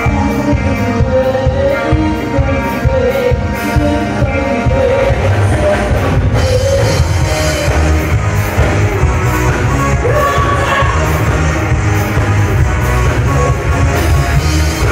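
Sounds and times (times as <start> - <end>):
person singing: 0.0 - 8.2, 10.0 - 11.4
drum kit: 0.0 - 14.9
live rock band playing: 0.0 - 14.9.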